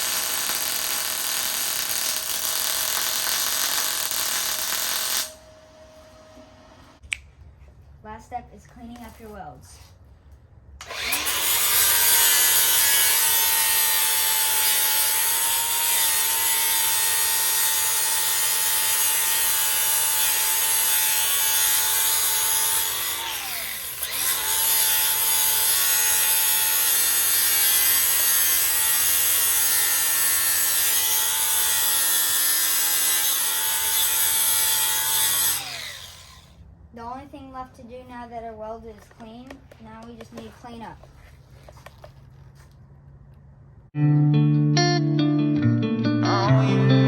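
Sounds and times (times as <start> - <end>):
angle grinder grinding steel: 10.8 - 36.6.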